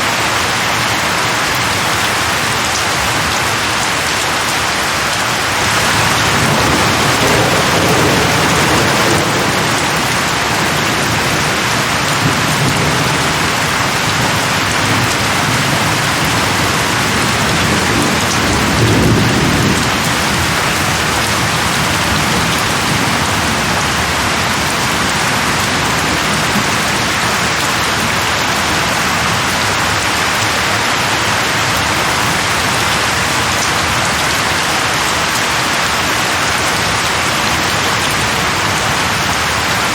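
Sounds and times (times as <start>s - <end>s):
heavy rain falling: 0.0s - 39.9s
low thunder rumbling: 5.4s - 30.1s.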